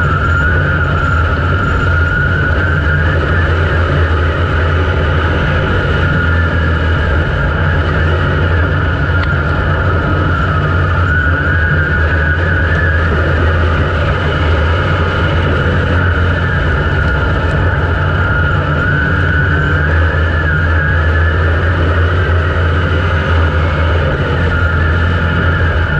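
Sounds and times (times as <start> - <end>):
race car engine running: 0.0 - 25.9
thin wavering whine: 0.0 - 25.9.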